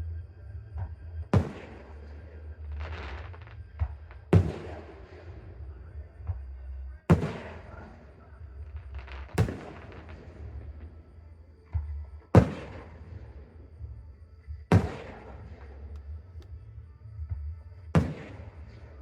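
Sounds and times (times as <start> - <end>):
firework shells booming: 0.8 - 2.1, 2.7 - 5.6, 6.2 - 11.1, 11.7 - 13.9, 14.6 - 16.5, 18.0 - 19.0.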